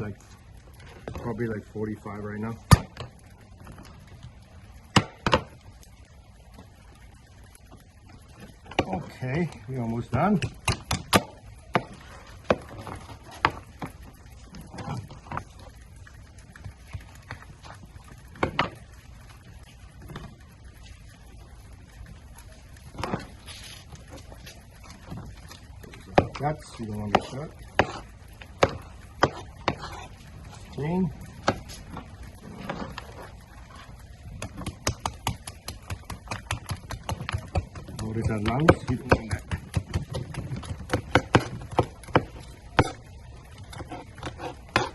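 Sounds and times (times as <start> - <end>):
crab shell clicking and tapping: 34.4 - 43.0.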